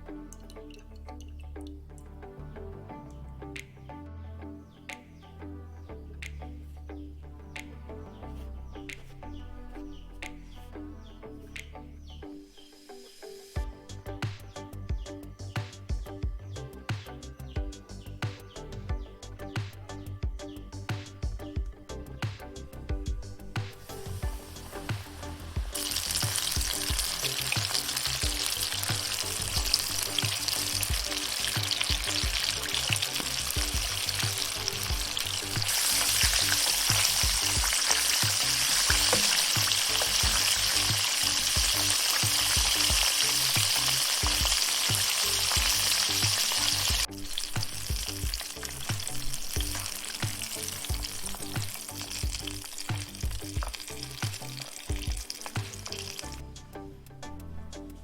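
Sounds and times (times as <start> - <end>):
chicken sizzling in hot oil: 23.8 - 56.4.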